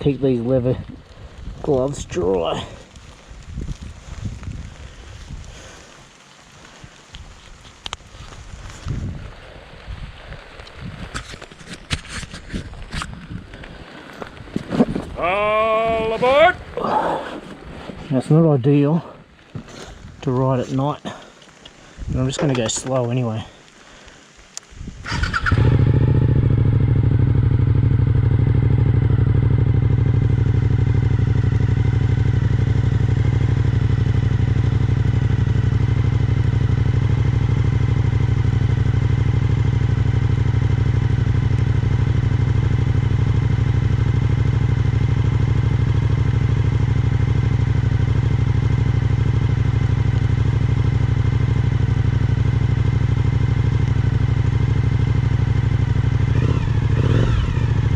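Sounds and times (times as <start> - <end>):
motorcycle engine idling: 25.0 - 57.9.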